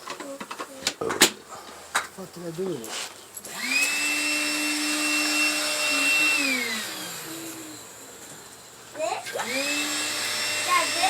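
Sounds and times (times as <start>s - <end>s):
vacuum motor whining: 3.5s - 8.5s, 9.2s - 11.0s.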